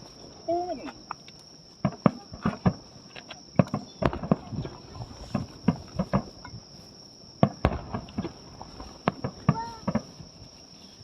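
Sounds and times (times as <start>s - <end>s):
high-pitched insect trill: 0.0s - 11.0s
sharp pops and knocks: 1.0s - 4.7s, 5.3s - 6.6s.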